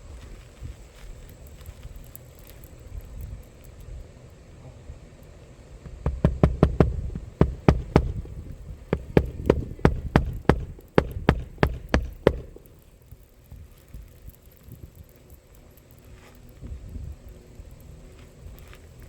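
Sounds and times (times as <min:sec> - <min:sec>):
hammer driving nails: 0:05.9 - 0:12.8.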